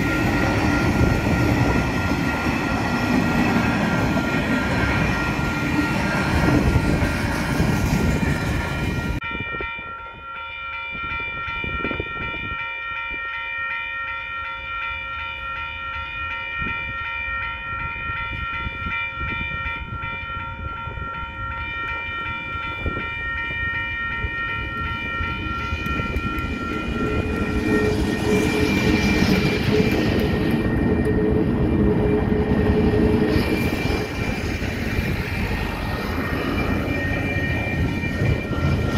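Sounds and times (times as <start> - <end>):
level crossing alarm bell: 0.0 - 7.2, 8.0 - 38.9
diesel locomotives rumbling past: 0.0 - 9.7, 17.6 - 38.9.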